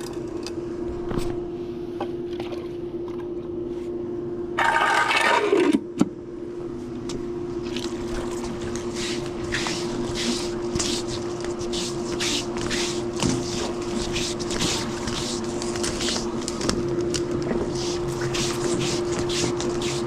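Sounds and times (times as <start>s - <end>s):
pool pump humming: 0.0s - 20.0s
hose scraping and knocking: 4.6s - 5.8s, 8.1s - 16.8s, 17.4s - 20.0s.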